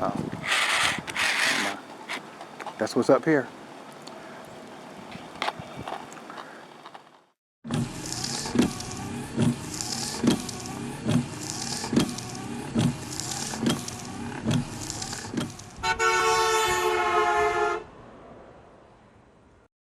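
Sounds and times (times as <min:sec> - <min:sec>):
car horn two-note blast: 0:15.8 - 0:17.8.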